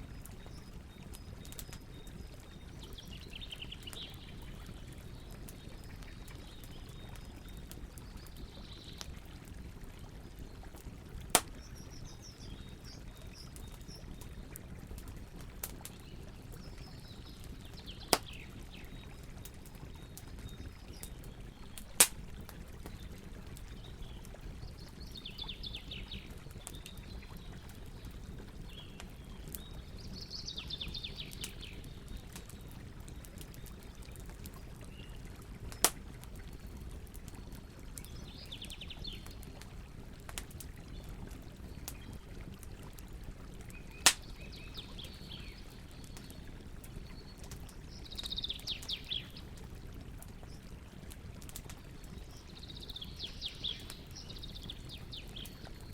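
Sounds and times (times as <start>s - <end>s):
campfire burning: 0.0s - 55.9s.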